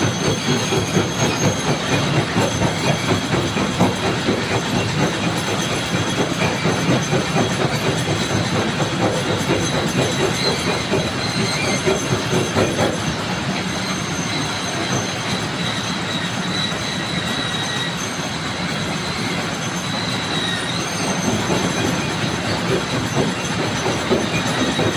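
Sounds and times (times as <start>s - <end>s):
stone crusher machine running: 0.0s - 24.9s
faint high squeal: 13.5s - 22.6s.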